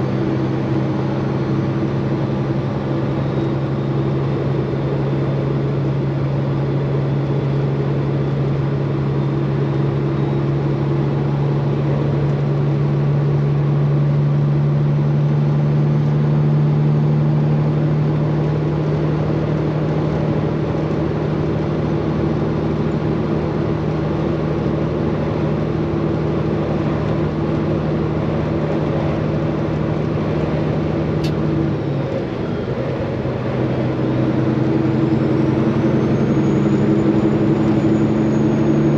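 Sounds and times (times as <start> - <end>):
truck diesel engine droning: 0.0 - 38.9.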